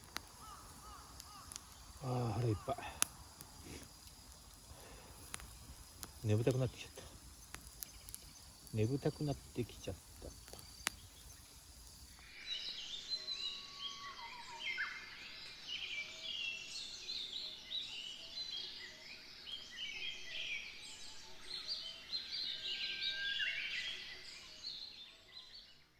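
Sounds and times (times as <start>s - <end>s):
birds chirping and singing: 0.2s - 11.8s.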